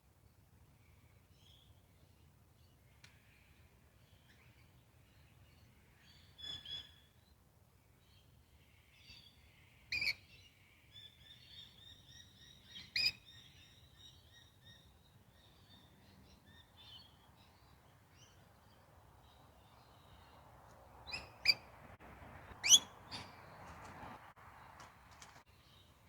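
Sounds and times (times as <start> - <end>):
birds chirping: 22.4 - 23.9.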